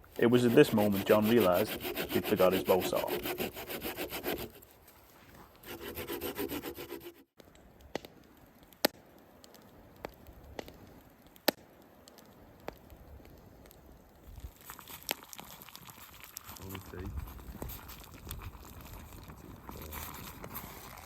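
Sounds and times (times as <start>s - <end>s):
hand saw cutting wood: 0.2s - 4.6s, 5.6s - 7.3s.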